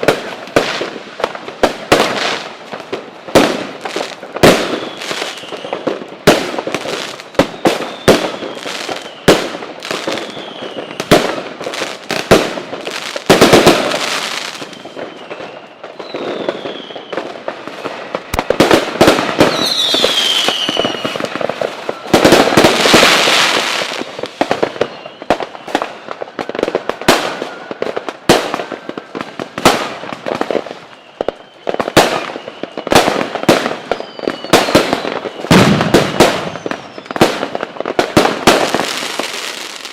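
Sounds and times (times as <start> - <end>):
fireworks bangs: 0.0 - 39.9
falling whistles: 4.6 - 5.9, 6.9 - 9.4, 10.0 - 11.1, 14.2 - 18.4, 19.4 - 26.2, 30.7 - 37.3.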